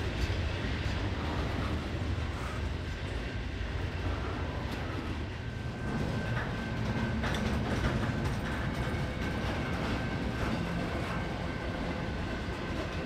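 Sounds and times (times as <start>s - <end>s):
train wheels rumbling on rail: 0.0s - 13.0s
clacks over rail joints: 4.7s - 13.0s.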